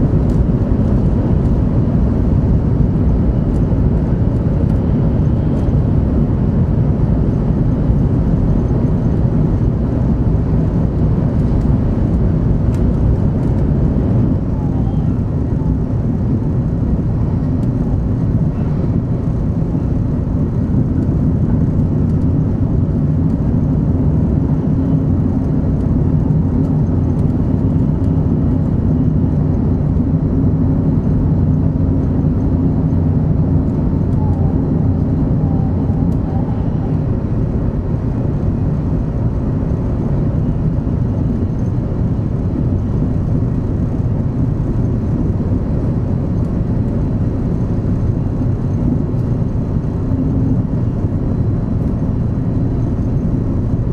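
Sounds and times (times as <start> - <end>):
train cabin low rumble: 0.0 - 53.9
faint humming tone: 31.6 - 38.1.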